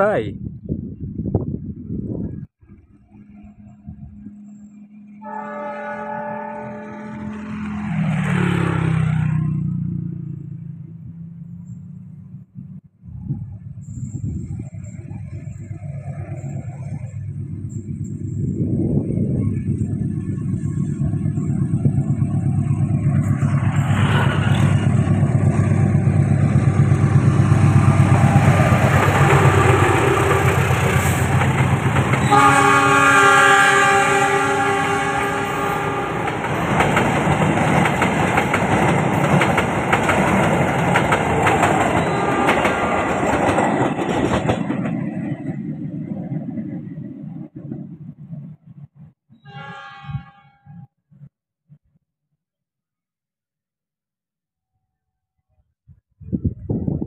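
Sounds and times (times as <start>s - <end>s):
multi-tone train horn blast: 5.0s - 7.9s, 27.3s - 31.3s, 32.2s - 36.5s, 42.0s - 42.9s, 49.4s - 50.9s
train heavy rumble: 11.6s - 49.1s
wheels clattering over rails: 36.1s - 45.6s.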